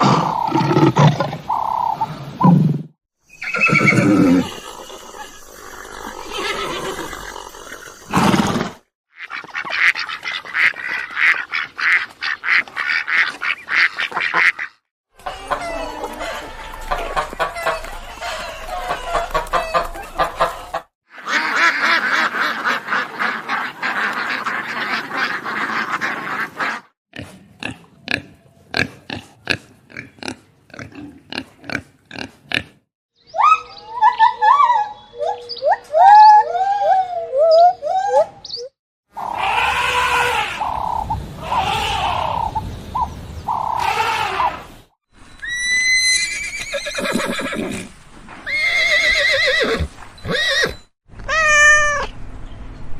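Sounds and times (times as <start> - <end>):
poultry chattering calls: 9.3 - 26.8, 39.2 - 44.6.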